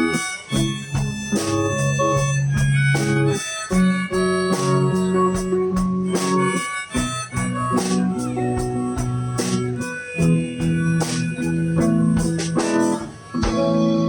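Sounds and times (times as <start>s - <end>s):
drum beat: 0.0s - 13.7s
guitar accompaniment: 0.0s - 14.0s
harmonica playing: 0.0s - 14.0s.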